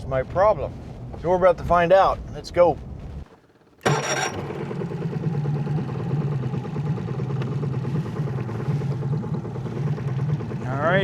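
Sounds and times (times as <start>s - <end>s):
boat motor idling: 3.1s - 11.0s.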